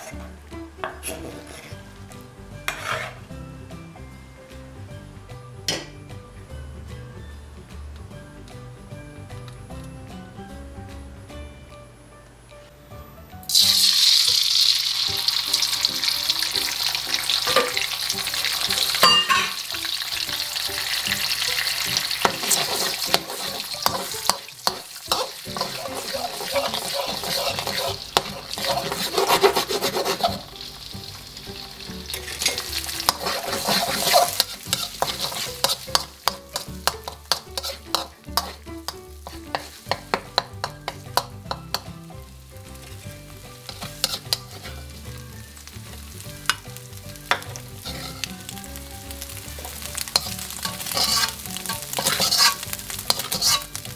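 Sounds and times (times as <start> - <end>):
metal spoon scraping wok: 0.0 - 0.3, 0.9 - 1.8, 2.6 - 3.3, 13.5 - 42.0, 42.8 - 45.1, 45.9 - 48.5, 49.6 - 53.9
eggs sizzling in oil: 0.0 - 5.8, 13.4 - 53.9.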